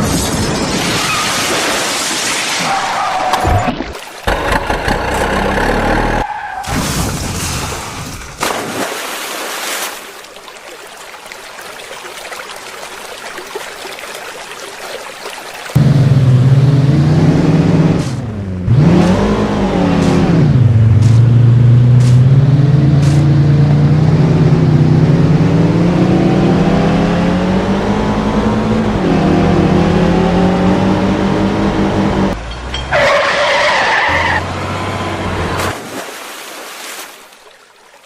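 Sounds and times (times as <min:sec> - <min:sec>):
vehicle engine running: 0:04.3 - 0:06.2, 0:15.8 - 0:25.6.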